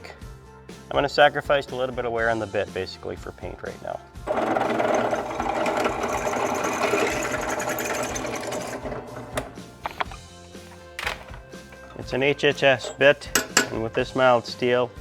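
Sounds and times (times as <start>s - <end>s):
electric drill cutting steel: 4.3s - 10.0s
clicks: 8.5s - 12.0s.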